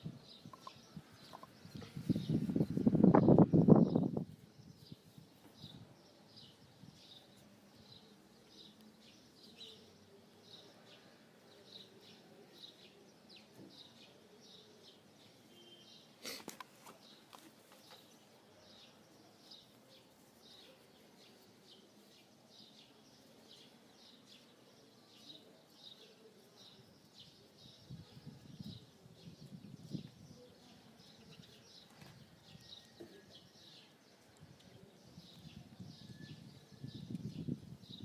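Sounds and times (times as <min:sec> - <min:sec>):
bird chirping faintly: 0:00.2 - 0:04.0.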